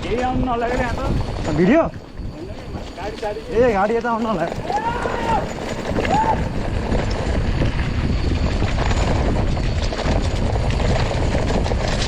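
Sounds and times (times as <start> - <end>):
rattles and clicks on rough track: 0.0 - 12.0
wind buffeting microphone: 0.0 - 12.0.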